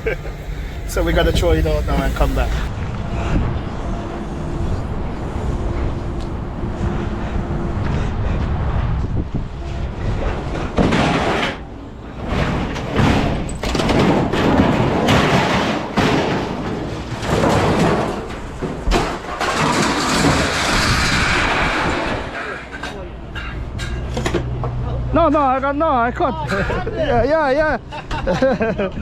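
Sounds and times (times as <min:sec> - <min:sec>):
scrap metal slamming and thudding: 0:09.9 - 0:24.6.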